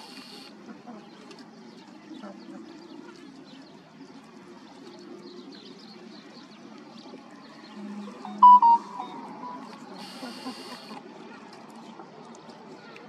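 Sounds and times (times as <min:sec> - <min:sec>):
birds chirping: 0:08.0 - 0:09.8.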